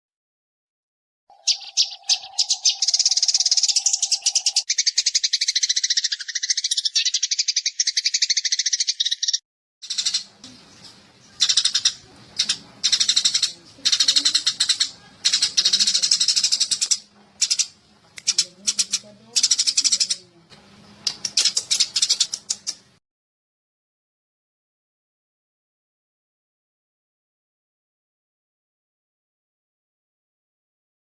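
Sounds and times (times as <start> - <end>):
sparrows chirping: 1.3 - 23.0.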